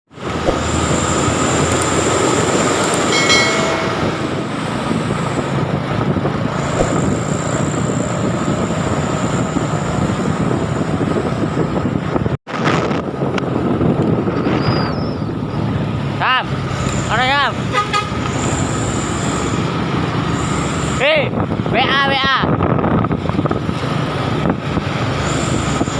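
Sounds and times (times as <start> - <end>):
heavy truck engine and road noise: 0.1 - 25.9
truck horn toot: 17.7 - 18.3.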